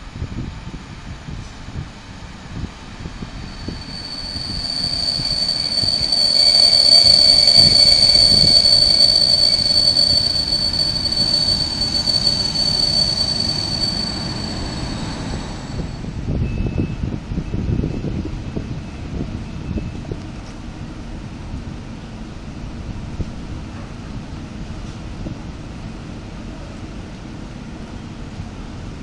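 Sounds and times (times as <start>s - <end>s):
rumble of wheels on rails: 1.4s - 16.6s
train wheels squealing: 2.6s - 18.1s.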